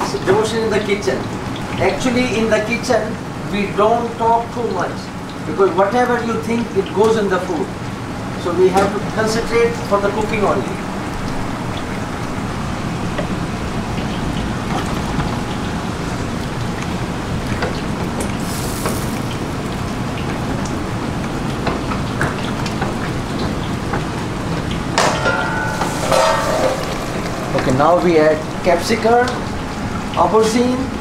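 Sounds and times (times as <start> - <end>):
food sizzling in hot oil: 18.1 - 30.2.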